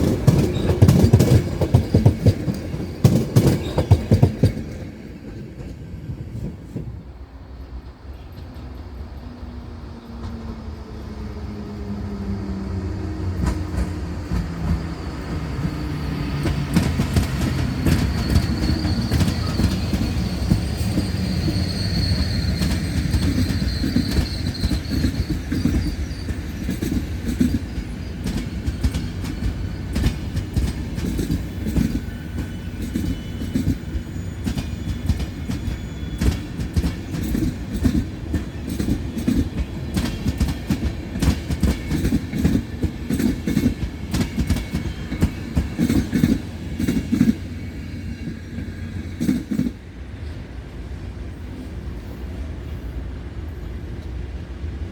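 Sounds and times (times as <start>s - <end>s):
train wheels clicking over rail joints: 0.0s - 7.1s, 13.1s - 50.4s
high wheel squeal: 10.8s - 49.8s.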